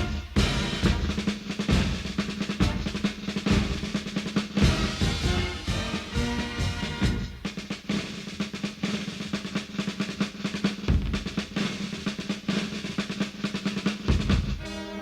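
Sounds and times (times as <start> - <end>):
wind band playing: 0.0 - 7.7, 14.4 - 15.0
snare drum rolls: 0.0 - 15.0.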